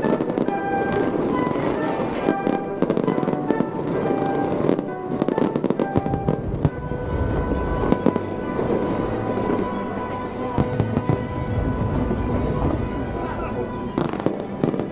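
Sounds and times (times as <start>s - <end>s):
fireworks bursting and crackling: 0.0s - 14.9s
music soundtrack: 0.0s - 14.9s
deep rumble: 10.4s - 14.0s.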